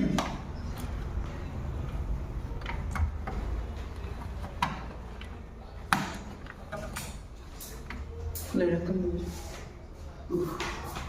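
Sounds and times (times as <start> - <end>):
tools clicking and knocking: 2.6 - 8.5.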